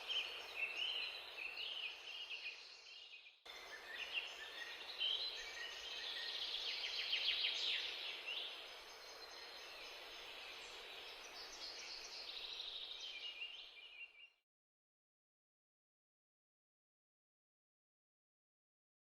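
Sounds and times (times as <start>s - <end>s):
steady background hiss: 0.0s - 14.0s
birds chirping and trilling: 0.0s - 14.4s.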